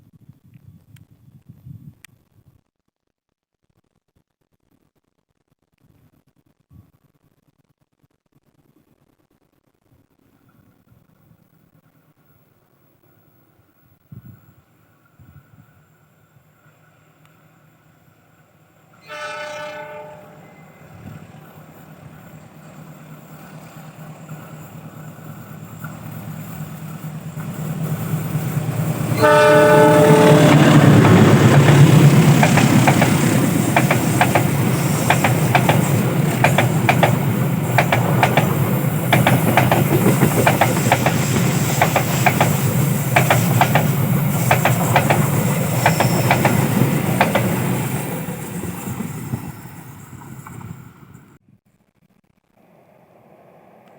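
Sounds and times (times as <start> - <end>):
locomotive horn blast: 19.0 - 21.0, 29.0 - 31.3
locomotive engine rumble: 20.4 - 51.4
train wheels clattering: 21.0 - 50.8.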